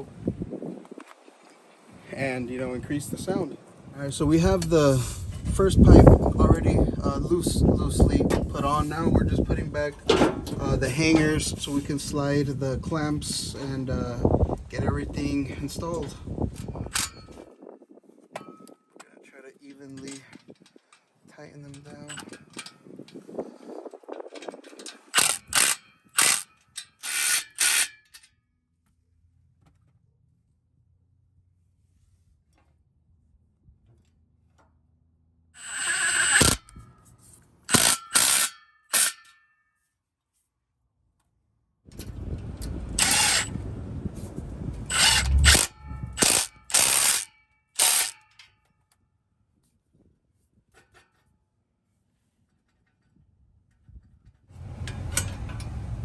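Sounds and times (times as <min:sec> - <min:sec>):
ratchet clicking: 0:24.5 - 0:28.2, 0:35.6 - 0:36.8, 0:37.7 - 0:39.4, 0:43.0 - 0:43.6, 0:44.9 - 0:48.5
impact wrench bursts: 0:25.1 - 0:28.2, 0:35.6 - 0:36.8, 0:37.7 - 0:39.3, 0:43.0 - 0:43.6, 0:44.9 - 0:48.3.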